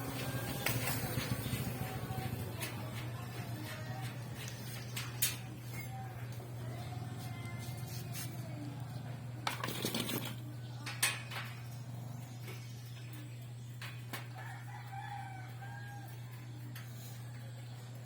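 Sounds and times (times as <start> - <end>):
rooster crowing: 14.3 - 16.5.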